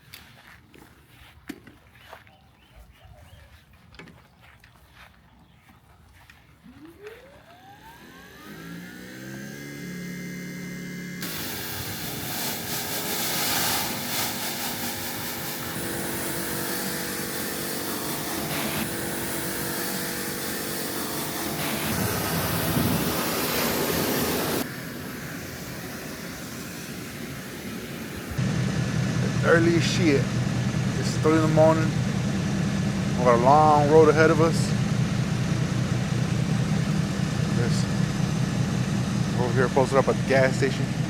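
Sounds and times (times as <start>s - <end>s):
vehicle engine roaring: 6.6s - 41.0s
road or wind noise: 21.9s - 29.3s.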